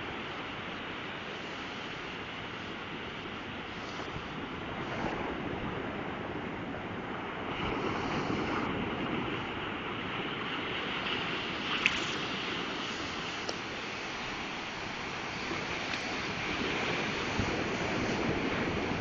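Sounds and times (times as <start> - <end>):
surf washing on beach: 0.0 - 19.0
wind buffeting microphone: 1.1 - 19.0.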